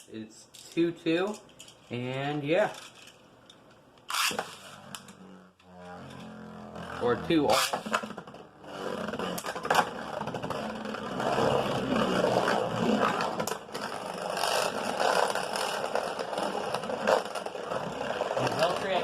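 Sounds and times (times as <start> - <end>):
spinning tops whirring: 4.0 - 19.0.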